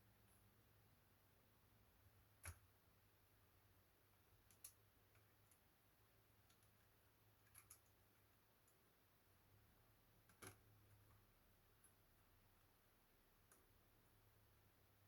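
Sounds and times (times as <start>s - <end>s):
faint sharp clicks of laptop parts: 10.2s - 10.7s.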